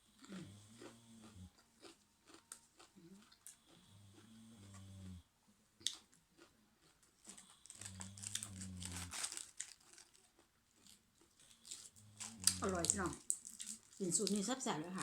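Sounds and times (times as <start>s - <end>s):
prawns crinkling and crunching: 6.9s - 15.0s.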